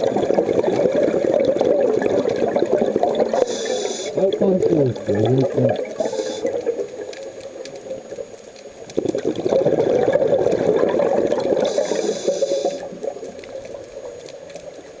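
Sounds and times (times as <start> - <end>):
exhaled bubbles gurgling: 0.0 - 15.0
regulator hiss: 3.4 - 4.8, 5.4 - 6.6, 11.7 - 12.9.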